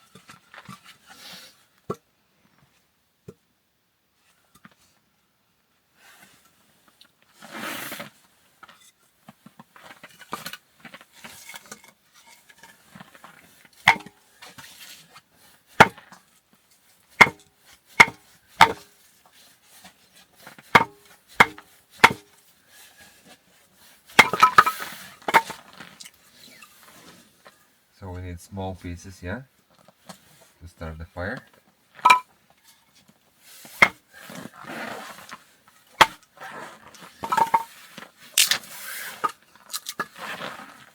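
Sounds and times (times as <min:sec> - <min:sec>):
chopping knocks on wood: 0:18.0 - 0:18.8, 0:20.8 - 0:22.2.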